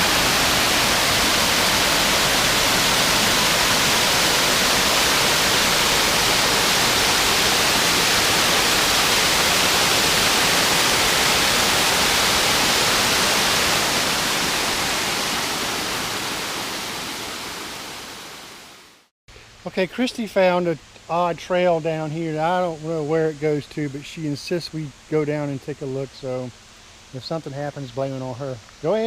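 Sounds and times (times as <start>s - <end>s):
waterfall rushing: 0.0s - 18.8s.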